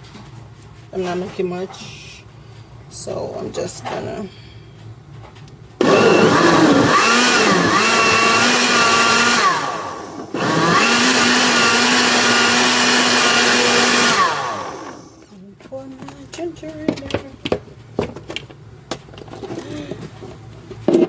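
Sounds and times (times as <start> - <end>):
electric blender running: 5.8 - 15.3.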